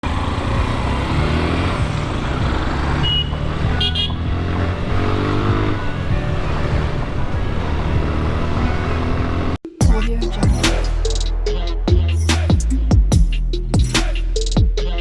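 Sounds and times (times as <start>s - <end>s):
motorcycle engine running: 0.0s - 9.6s
vehicle horn toots: 2.8s - 7.8s.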